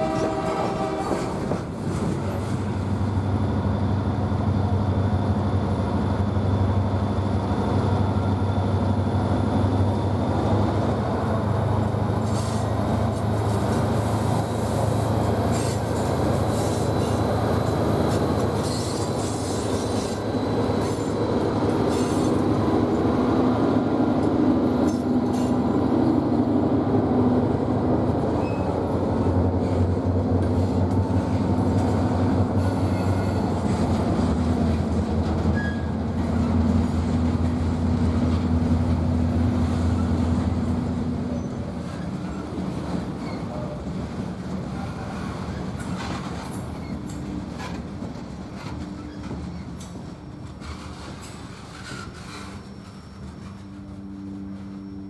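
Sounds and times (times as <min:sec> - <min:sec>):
train wheels rumbling on rails: 0:00.0 - 0:55.0
high wheel squeal: 0:18.5 - 0:21.2, 0:35.5 - 0:36.7, 0:51.6 - 0:55.0.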